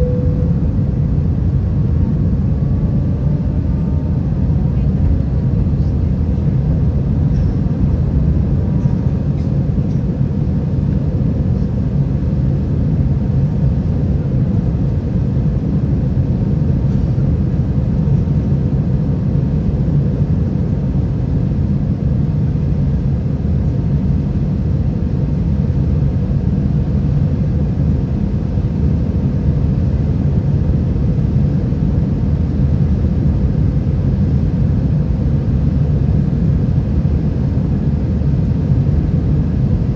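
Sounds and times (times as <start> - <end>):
airflow noise: 0.0 - 1.5
aircraft cabin engine rumble: 0.0 - 39.9.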